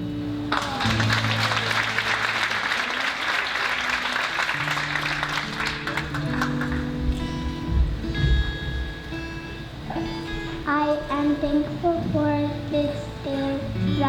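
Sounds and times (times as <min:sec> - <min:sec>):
soft instrumental music: 0:00.0 - 0:14.0
audience applauding: 0:00.5 - 0:07.4.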